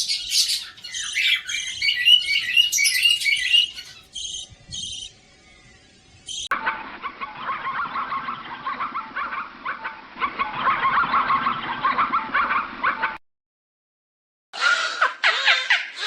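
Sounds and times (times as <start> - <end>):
flock of poultry calling: 0.0 - 4.1.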